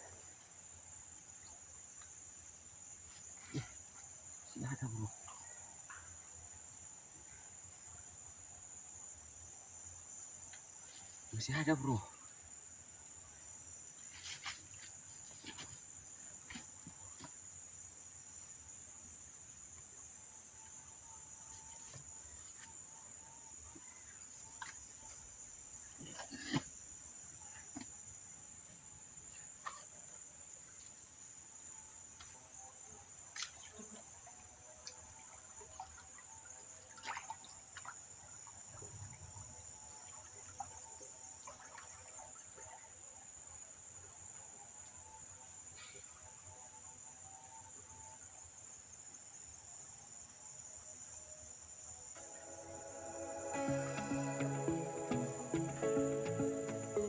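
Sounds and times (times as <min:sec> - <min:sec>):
insect call: 0:00.0 - 0:57.0
insects buzzing: 0:52.0 - 0:57.0.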